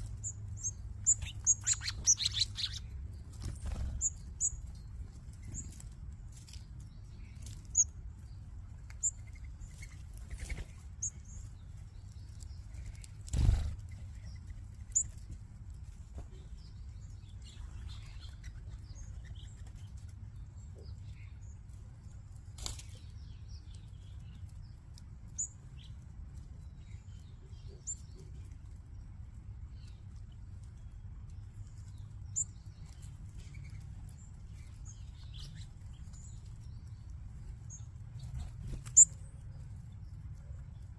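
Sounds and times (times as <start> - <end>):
small birds chirping: 0.0 - 40.9
bird wings fluttering: 3.3 - 4.1, 12.9 - 14.0.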